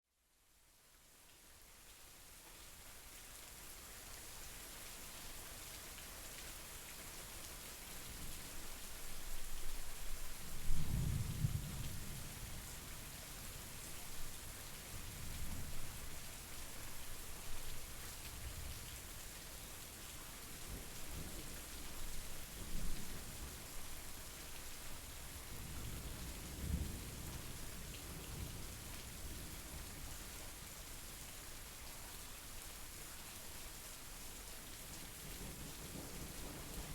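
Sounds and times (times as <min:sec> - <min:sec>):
steady rainfall: 0:00.4 - 0:36.9
low rolls of thunder: 0:10.6 - 0:12.8, 0:25.5 - 0:29.4.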